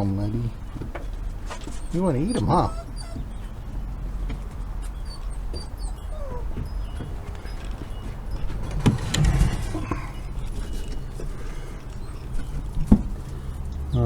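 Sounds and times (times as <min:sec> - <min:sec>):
chicks peeping: 0:00.6 - 0:14.0
dog whimpering: 0:01.6 - 0:03.6, 0:04.8 - 0:12.8.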